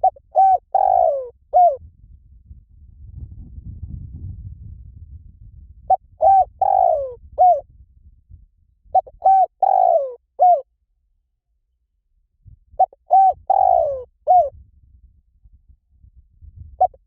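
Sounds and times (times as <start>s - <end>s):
dove cooing: 0.0s - 1.8s, 5.9s - 7.6s, 9.0s - 10.7s, 12.8s - 14.5s, 16.8s - 17.0s
low rumble: 1.8s - 6.0s, 7.2s - 9.0s.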